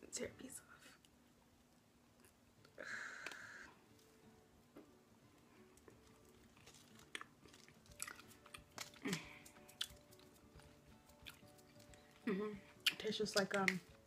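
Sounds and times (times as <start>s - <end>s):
chewing and wet mouth clicks: 6.6s - 10.4s, 11.1s - 11.9s.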